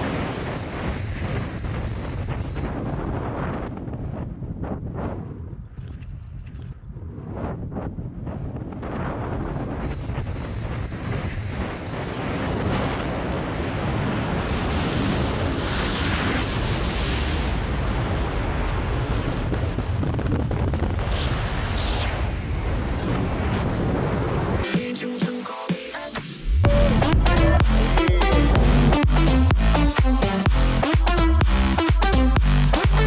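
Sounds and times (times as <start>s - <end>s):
wind buffeting microphone: 0.0s - 24.6s.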